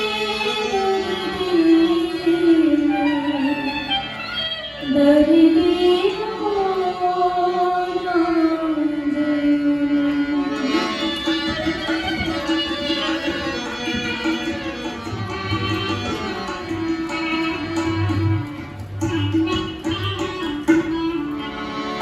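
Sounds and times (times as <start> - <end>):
sarangi sliding melody: 0.0 - 22.0
tabla rhythm: 10.5 - 22.0.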